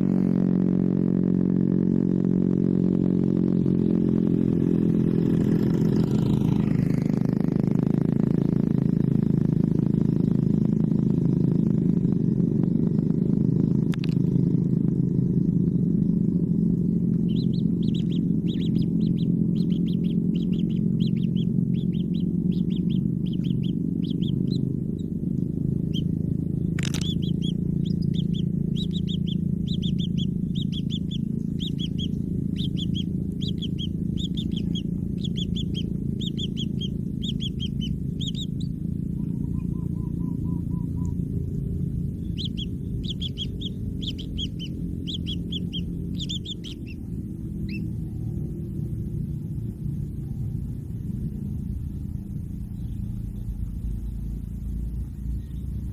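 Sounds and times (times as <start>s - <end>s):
steady low rumble: 0.0s - 55.9s
sharp click: 13.9s - 14.2s, 26.8s - 27.2s
chicks chirping: 16.6s - 48.1s.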